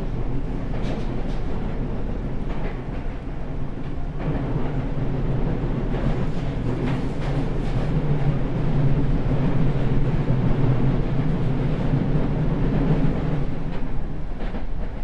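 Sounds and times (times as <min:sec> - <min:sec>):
train rolling rumble: 0:00.0 - 0:15.0
faint rail clicks: 0:00.5 - 0:08.4.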